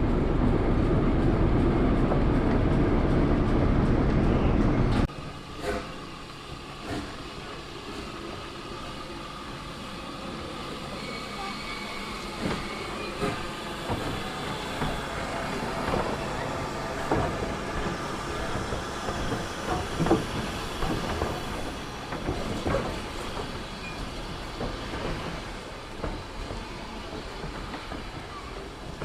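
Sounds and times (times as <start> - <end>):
train running past: 0.0 - 29.0
wheels clicking over rail joints: 12.2 - 29.0.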